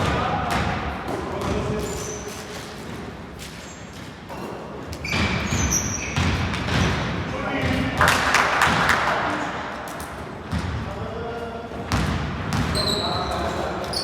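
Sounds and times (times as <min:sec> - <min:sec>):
basketball bouncing on hardwood: 0:11.9 - 0:12.8.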